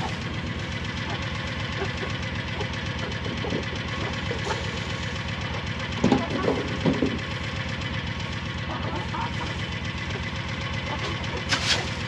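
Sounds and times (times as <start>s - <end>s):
small engine running: 0.0s - 12.0s
knocks and clatters: 1.0s - 4.8s, 5.4s - 7.5s.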